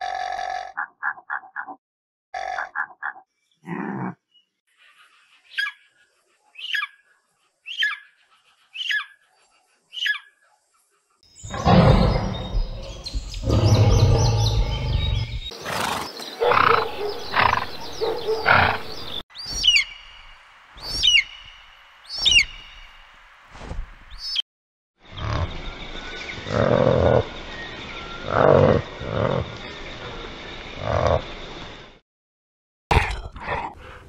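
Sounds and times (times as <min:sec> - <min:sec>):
lion growling and roaring: 0:11.4 - 0:19.2, 0:26.4 - 0:27.4, 0:28.2 - 0:29.7
eagle high chirping calls: 0:16.1 - 0:22.9.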